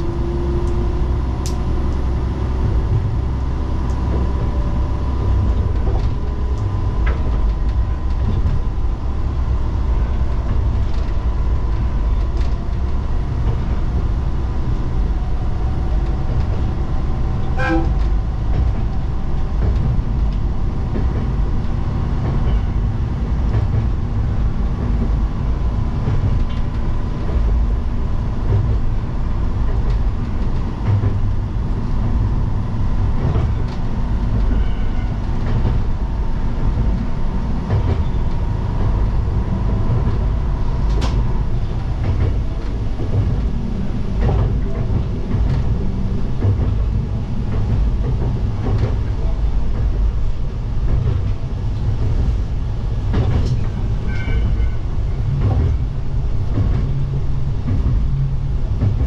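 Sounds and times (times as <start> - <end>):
train engine and wheel rumble: 0.0 - 59.0
train horn toot: 17.5 - 18.2, 34.5 - 35.3, 54.1 - 54.9.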